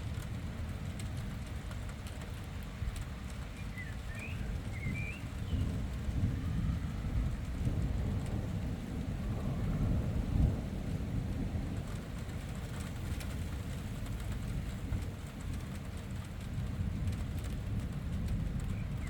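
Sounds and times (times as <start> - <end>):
steady rain: 0.0 - 19.0
thunder rumbling: 4.4 - 19.0.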